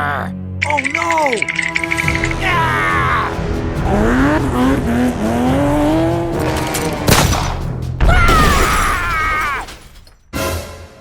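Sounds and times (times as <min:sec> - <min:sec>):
engine revving: 0:03.3 - 0:07.8
sharp crash: 0:07.0 - 0:08.9.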